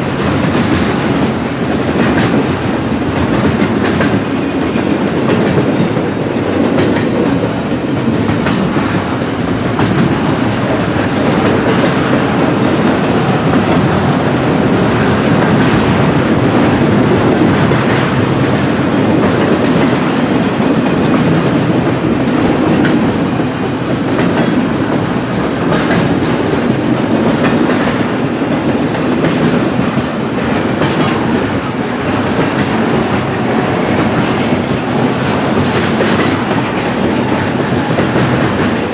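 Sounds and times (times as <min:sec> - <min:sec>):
freight train wheels rumbling: 0:00.0 - 0:38.9
wheels clacking over rail joints: 0:00.0 - 0:38.9.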